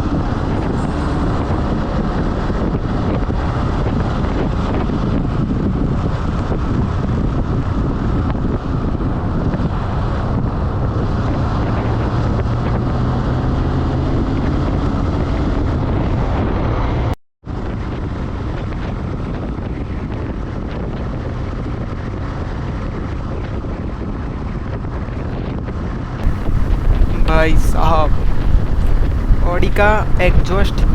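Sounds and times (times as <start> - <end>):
wind buffeting microphone: 0.0 - 22.0, 26.2 - 30.9
motorcycle engine drone: 26.2 - 30.9.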